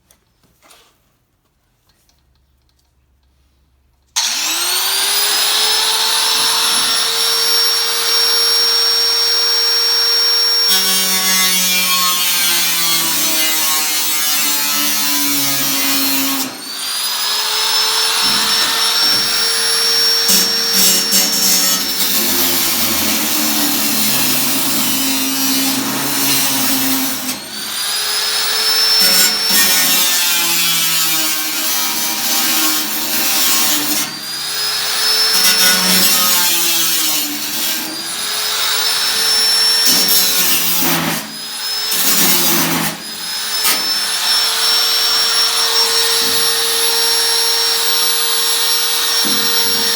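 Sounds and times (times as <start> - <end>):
power tool motor whine on metal: 4.2 - 10.9.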